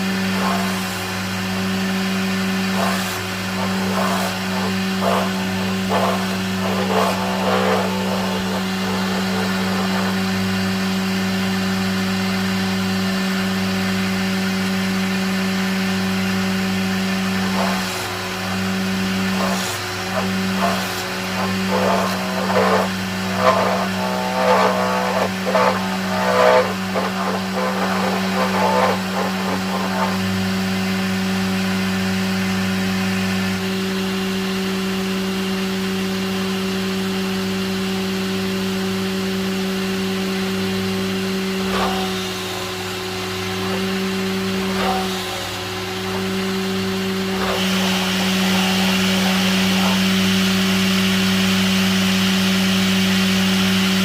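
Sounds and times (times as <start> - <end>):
power tool motor running: 0.0 - 54.0
tool cutting into wood: 0.2 - 1.1, 2.5 - 11.2, 17.2 - 30.8, 41.2 - 51.4.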